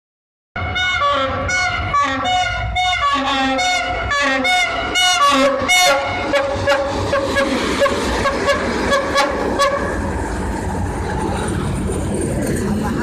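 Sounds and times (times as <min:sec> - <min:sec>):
locomotive air horn blasts: 0:00.6 - 0:10.0
low engine rumble: 0:00.6 - 0:13.0.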